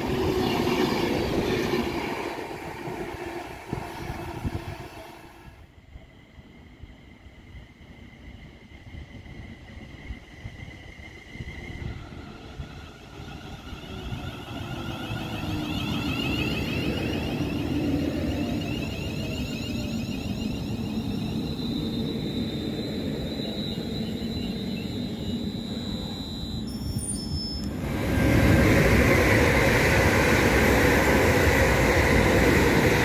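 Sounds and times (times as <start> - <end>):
train rumble: 0.0 - 33.0
high whine: 10.8 - 33.0.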